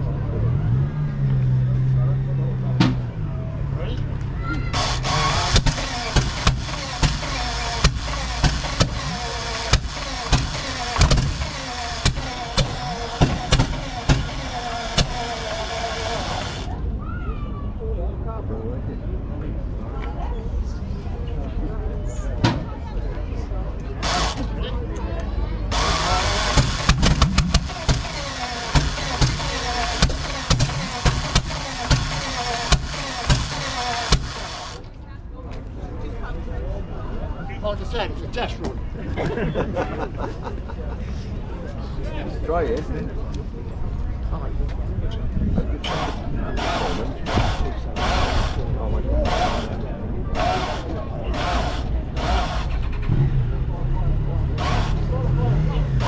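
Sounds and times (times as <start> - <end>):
engine turning over with loud pops: 2.8 - 3.2, 4.2 - 16.8, 23.8 - 24.7, 25.7 - 35.0, 45.5 - 53.6, 54.4 - 56.0.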